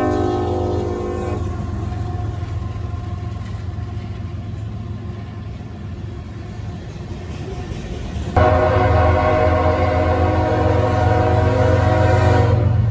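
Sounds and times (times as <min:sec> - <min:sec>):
locomotive horn chord: 0:00.0 - 0:02.4, 0:08.4 - 0:12.9
train engine and rolling cars: 0:00.0 - 0:12.9.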